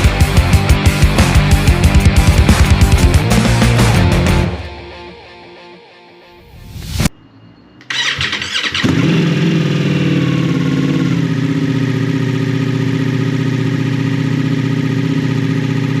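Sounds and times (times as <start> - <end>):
motorcycle starter cranking: 7.8 - 9.9
motorcycle engine idling: 7.8 - 16.0.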